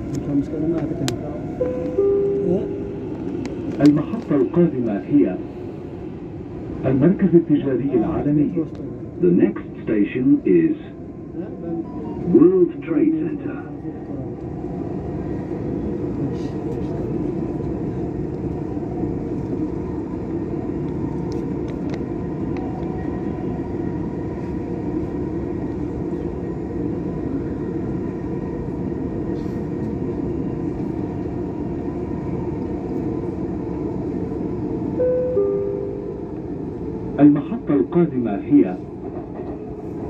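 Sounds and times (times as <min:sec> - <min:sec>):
train wheels and motors rumbling: 0:00.0 - 0:07.5.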